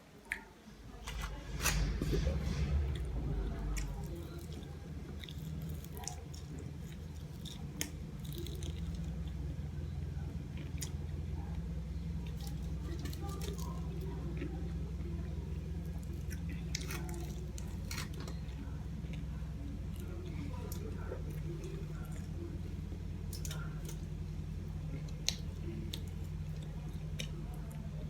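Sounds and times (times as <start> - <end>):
person chewing food: 0.3 - 9.4, 15.8 - 27.9
low hum: 0.6 - 28.0.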